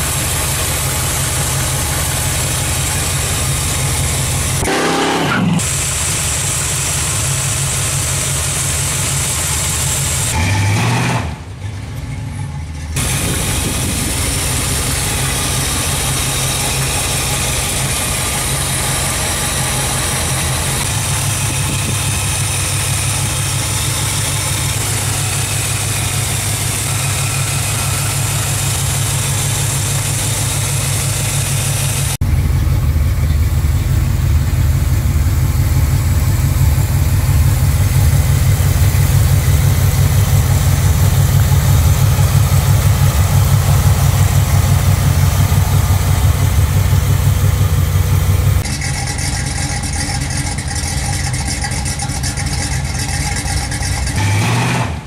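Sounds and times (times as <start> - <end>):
car engine idling: 0.0 - 10.4, 11.4 - 55.0.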